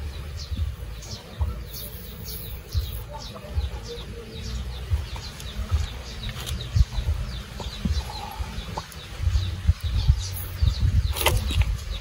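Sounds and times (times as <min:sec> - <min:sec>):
small birds chirping: 0:00.0 - 0:12.0
low rumble: 0:02.7 - 0:12.0.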